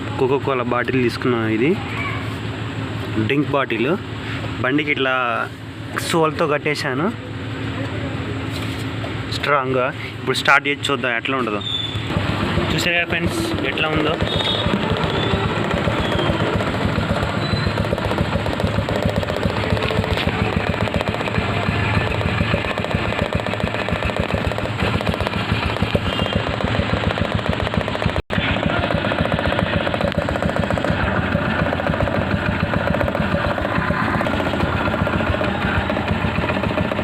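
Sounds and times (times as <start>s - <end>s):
motorbike engine running: 11.3s - 37.0s.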